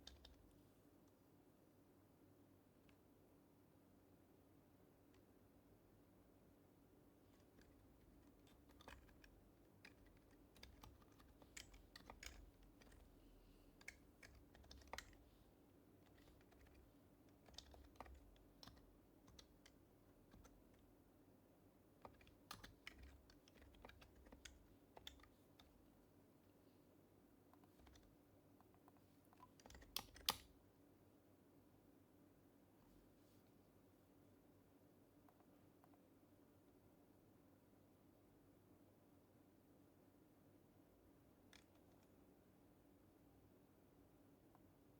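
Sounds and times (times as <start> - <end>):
quiet keyboard typing: 0.0 - 1.2, 7.2 - 26.1, 27.4 - 30.6, 41.4 - 42.2.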